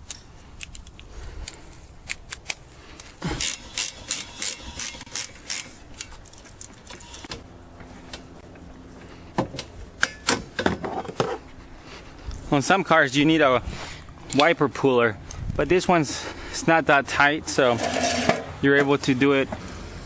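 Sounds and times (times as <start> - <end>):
ratchet wrench clicking: 3.4 - 7.3.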